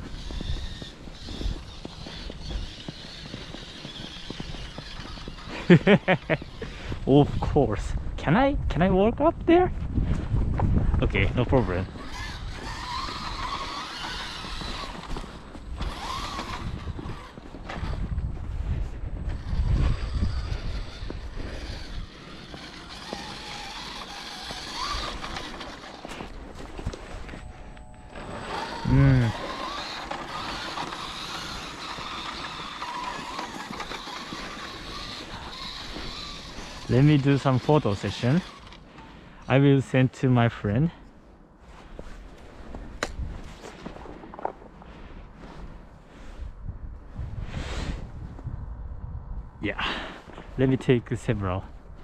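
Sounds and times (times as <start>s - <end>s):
electric motor and gear whine: 0.0s - 8.7s, 9.3s - 40.0s.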